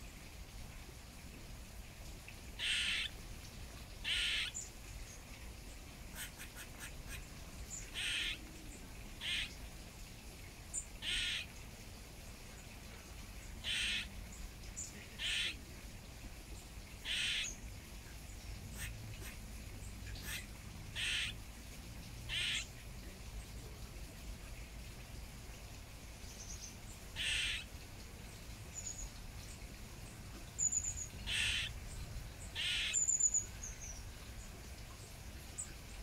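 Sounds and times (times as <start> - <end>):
bird harsh calls: 2.6 - 3.1, 4.0 - 4.6, 7.8 - 8.4, 9.2 - 9.6, 11.0 - 11.5, 13.6 - 14.1, 15.2 - 15.6, 17.0 - 17.6, 20.2 - 21.4, 22.3 - 22.7, 27.2 - 27.7, 30.6 - 31.8, 32.6 - 33.4.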